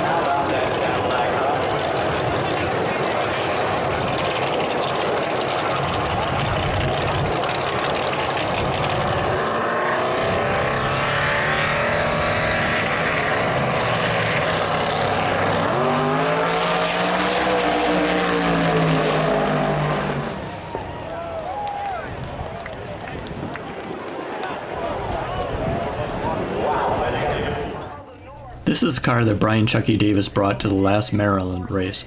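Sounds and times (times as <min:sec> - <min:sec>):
race car engine running: 0:00.0 - 0:21.2.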